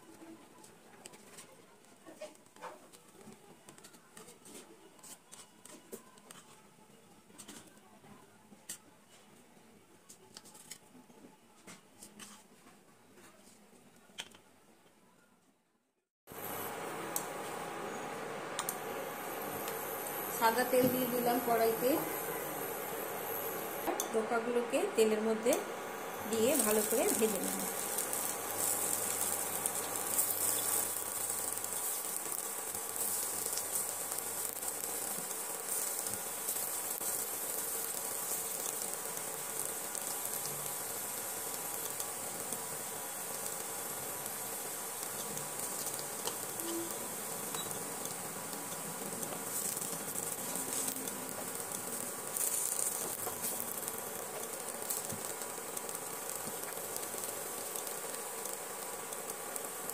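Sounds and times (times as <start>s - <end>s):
faint steady hum: 16.3s - 59.9s
food sizzling in oil: 16.3s - 59.9s.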